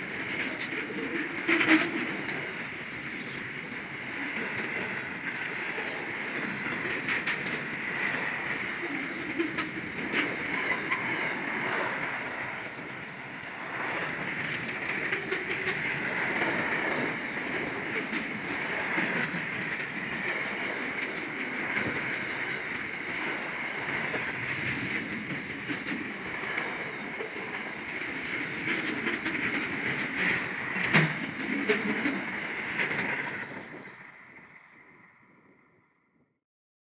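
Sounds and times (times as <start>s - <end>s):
steel wheels clacking over rail joints: 0.0s - 35.0s
freight train rolling past: 0.0s - 36.2s.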